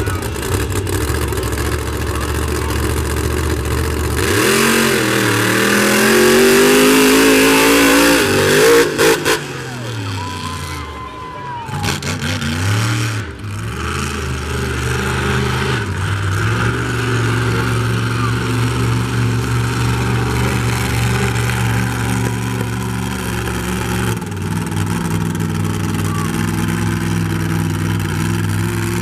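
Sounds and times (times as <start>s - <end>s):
monster truck engine running hard: 0.0s - 29.0s.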